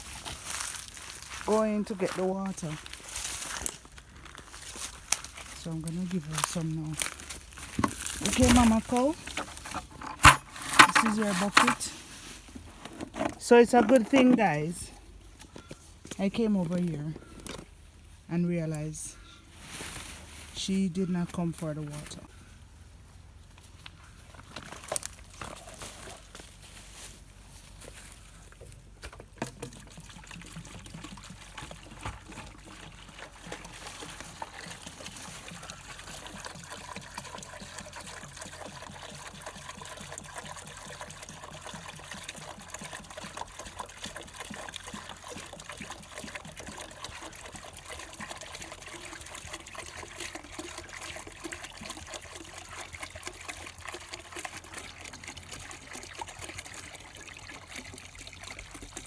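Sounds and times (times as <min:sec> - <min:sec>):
water pouring into a bucket: 0:00.0 - 0:12.7, 0:27.7 - 0:59.0.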